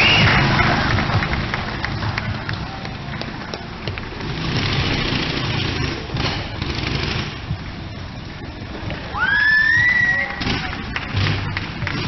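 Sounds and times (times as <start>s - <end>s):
loud rising whistle: 0.0s - 0.4s, 9.1s - 10.4s
motorcycle engine running: 0.0s - 9.2s, 10.2s - 12.0s.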